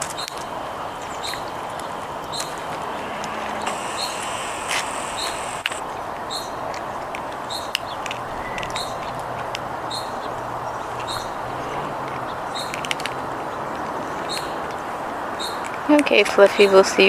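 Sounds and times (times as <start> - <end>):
background hiss: 1.0 - 5.8
bird repeating high call: 2.3 - 5.8
sharp clicks: 3.2 - 5.8.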